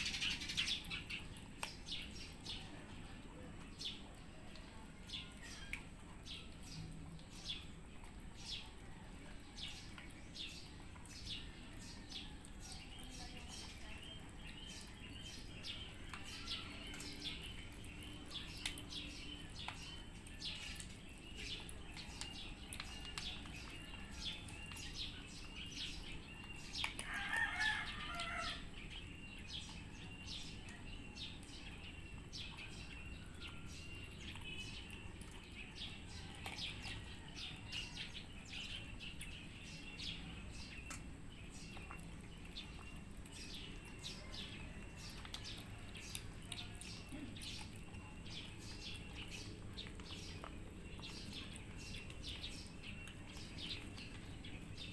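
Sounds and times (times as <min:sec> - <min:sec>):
high bird chirping: 0:00.0 - 0:02.6
cats chewing dry kibble: 0:00.0 - 0:54.9.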